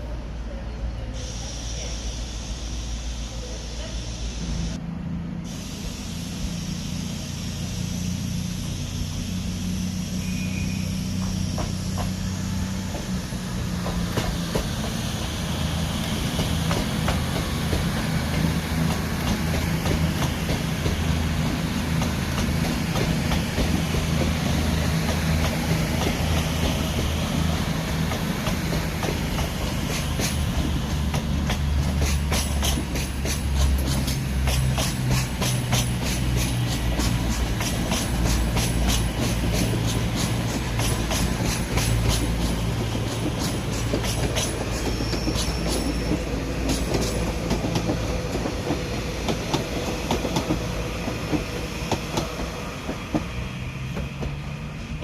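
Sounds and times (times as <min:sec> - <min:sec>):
train low drone: 0:00.0 - 0:55.0
wheels clicking over rail joints: 0:28.0 - 0:54.4.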